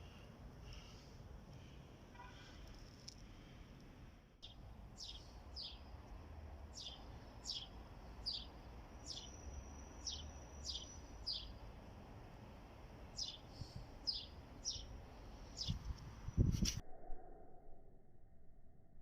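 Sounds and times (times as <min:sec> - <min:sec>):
bird chirping: 0:04.4 - 0:11.7, 0:13.1 - 0:16.6.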